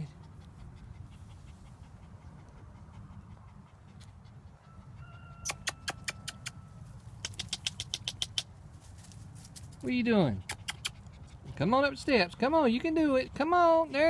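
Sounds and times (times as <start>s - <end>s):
quick sharp clicks: 7.2s - 8.5s.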